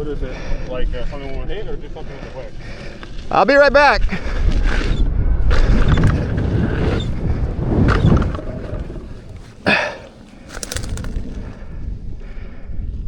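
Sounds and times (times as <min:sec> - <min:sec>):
wind buffeting microphone: 0:03.9 - 0:13.0
outdoor rumble and rustle: 0:04.1 - 0:13.0
brief crackles: 0:05.5 - 0:11.8.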